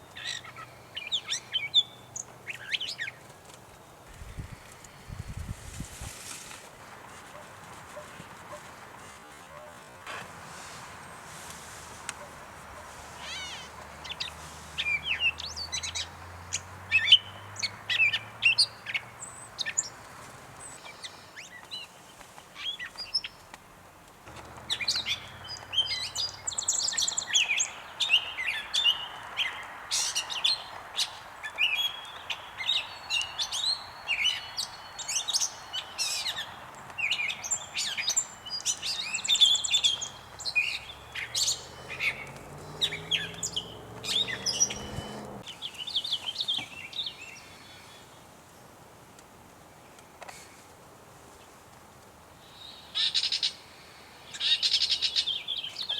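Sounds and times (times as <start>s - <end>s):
catbird singing: 36.1s - 45.4s.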